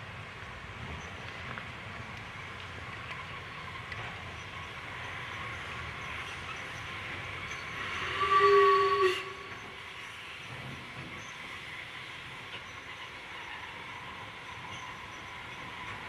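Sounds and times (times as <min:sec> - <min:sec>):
steam locomotive rumbling: 0:00.0 - 0:16.0
steam whistle blast: 0:08.0 - 0:09.8.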